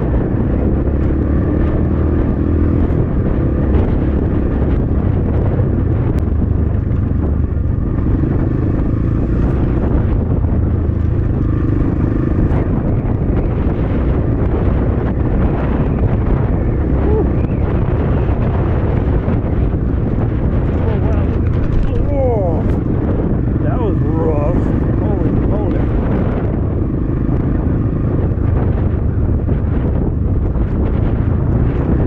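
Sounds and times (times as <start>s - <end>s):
wind rumbling on microphone: 0.0s - 32.0s.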